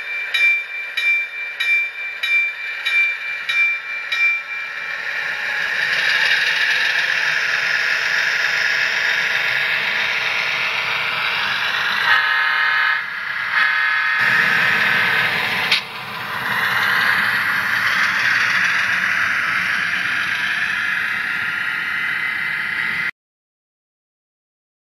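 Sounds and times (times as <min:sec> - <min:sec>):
model diesel engine sound from speaker: 0:04.6 - 0:23.1.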